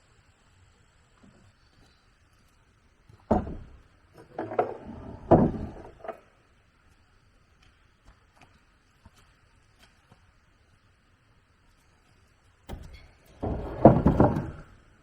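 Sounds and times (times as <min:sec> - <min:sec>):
wooden knocks and clunks: 0:03.1 - 0:06.2, 0:12.7 - 0:14.8.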